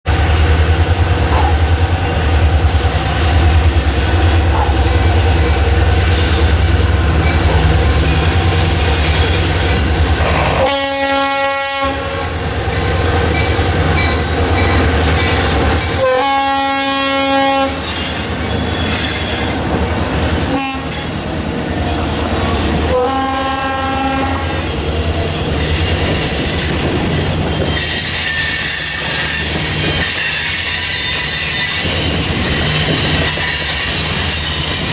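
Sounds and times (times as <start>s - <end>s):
diesel locomotive engine rumbling: 0.0s - 34.9s
steel wheels squealing: 1.6s - 10.7s, 17.7s - 19.7s, 20.8s - 22.9s, 24.4s - 34.9s
train horn blasts: 10.2s - 12.4s, 15.9s - 17.9s, 20.4s - 21.0s, 22.8s - 24.7s.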